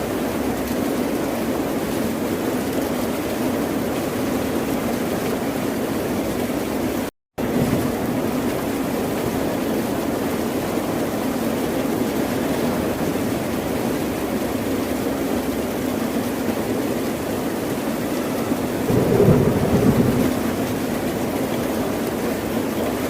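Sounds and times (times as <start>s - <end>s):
ocean surf roar: 17.2s - 23.0s.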